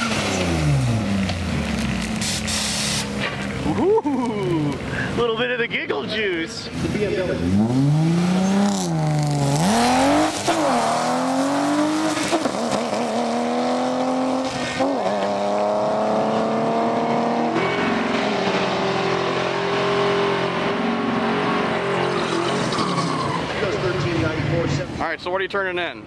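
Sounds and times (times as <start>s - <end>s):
drag car accelerating hard: 0.0s - 3.8s, 6.8s - 25.0s.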